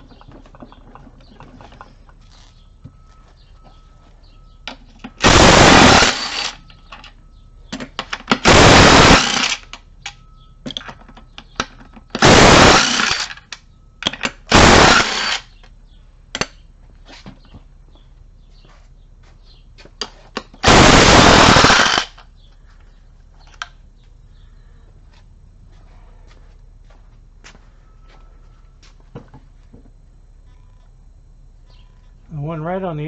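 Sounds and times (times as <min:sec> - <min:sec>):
tools and bolts clattering: 0:00.0 - 0:02.6
impact wrench bursts: 0:05.1 - 0:07.1, 0:08.0 - 0:10.9, 0:11.6 - 0:15.6, 0:20.4 - 0:22.3.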